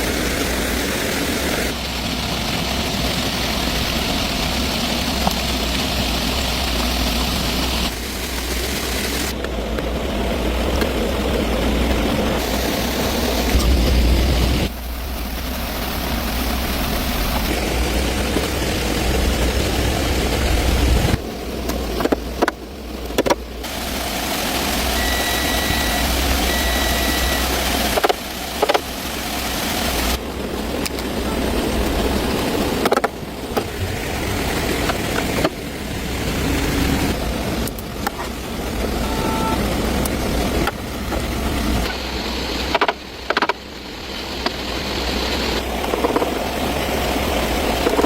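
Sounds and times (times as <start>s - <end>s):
car engine running: 0.0s - 48.0s
short beeps: 24.9s - 27.6s.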